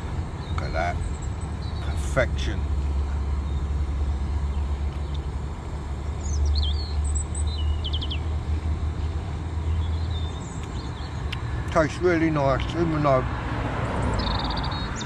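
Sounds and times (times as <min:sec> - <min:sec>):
steady low rumble: 0:00.0 - 0:13.6
songbird chirping and trilling: 0:00.4 - 0:05.3, 0:06.0 - 0:08.7, 0:09.6 - 0:11.5, 0:14.1 - 0:15.0.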